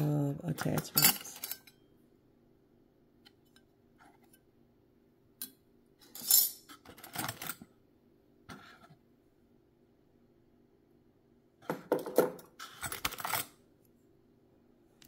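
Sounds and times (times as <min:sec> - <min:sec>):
small metal parts clinking: 0:00.6 - 0:01.7, 0:06.0 - 0:07.5.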